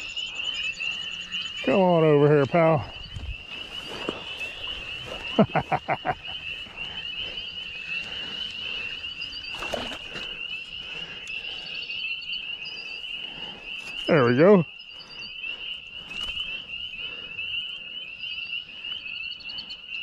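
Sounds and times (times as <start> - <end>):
frogs trilling in chorus: 0.0 - 20.0
lower frog calls: 0.0 - 20.0.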